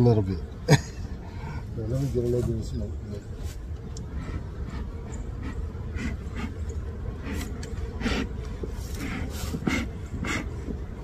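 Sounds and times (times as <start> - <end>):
bellows puffing air: 3.3 - 11.0.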